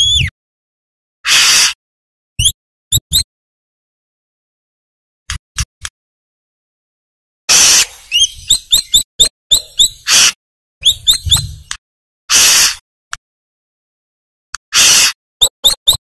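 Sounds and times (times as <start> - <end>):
bird harsh rasping calls: 1.2 - 1.8, 7.5 - 11.6, 12.3 - 12.8, 14.6 - 16.0.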